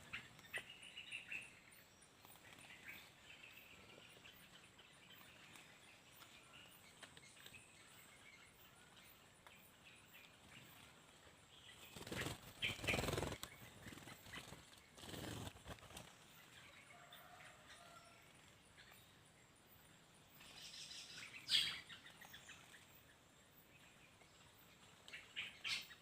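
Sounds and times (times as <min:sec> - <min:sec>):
faint bird chirps: 0:00.0 - 0:26.0
birds wings flapping: 0:11.8 - 0:16.3.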